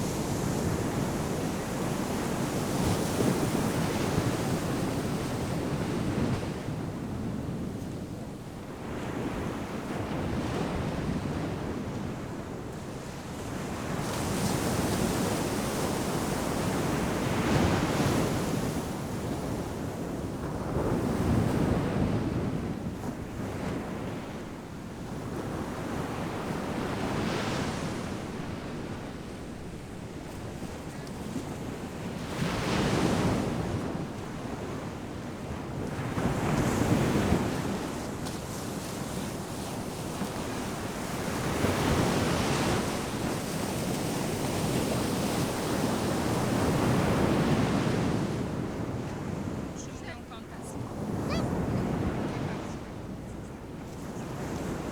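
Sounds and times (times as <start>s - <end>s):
ocean waves breaking: 39.8s - 54.9s.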